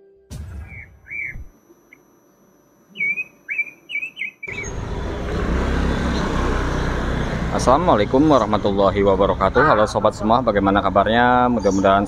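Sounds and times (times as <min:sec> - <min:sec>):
bird chirping: 0:00.6 - 0:01.5, 0:02.9 - 0:08.7, 0:11.4 - 0:12.0
motorbikes passing: 0:04.5 - 0:12.0
street traffic: 0:04.5 - 0:12.0.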